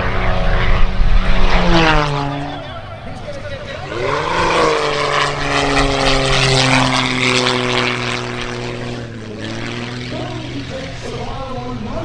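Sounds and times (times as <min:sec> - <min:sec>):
propeller airplane passing: 0:00.0 - 0:12.0.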